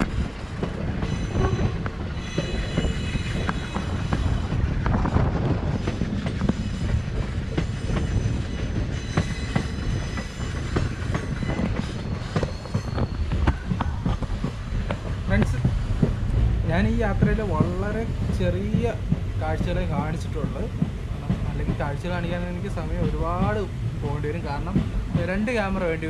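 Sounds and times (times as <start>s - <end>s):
rail joint clacks: 0.0s - 26.0s
train wheels rumbling on rail: 0.0s - 26.0s
wheel flange squeals: 1.0s - 4.5s, 7.8s - 13.8s.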